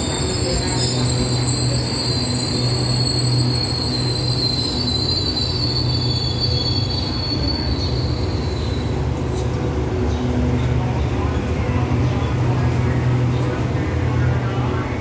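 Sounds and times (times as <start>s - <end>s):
high-pitched wheel squeal: 0.0s - 9.0s
train rolling low rumble: 0.0s - 15.0s.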